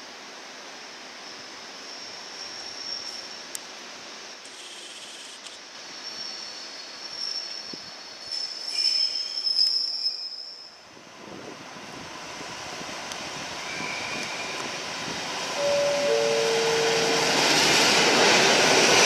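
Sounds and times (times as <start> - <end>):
train wheels squealing: 1.2 - 3.5, 5.9 - 10.8, 13.6 - 14.6
electric train rumbling: 5.6 - 19.0.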